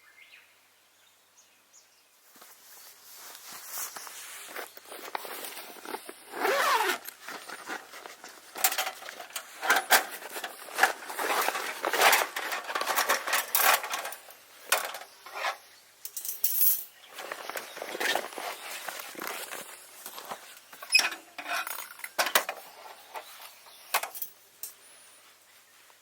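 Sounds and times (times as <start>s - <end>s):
metal clinking and scraping: 3.9s - 24.8s.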